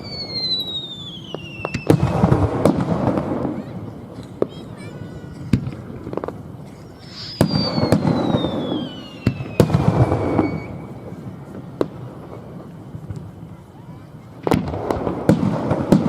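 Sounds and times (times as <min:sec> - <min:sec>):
descending whistling tone: 0:00.0 - 0:02.0, 0:07.0 - 0:11.2
fireworks bursting and crackling: 0:00.0 - 0:16.0.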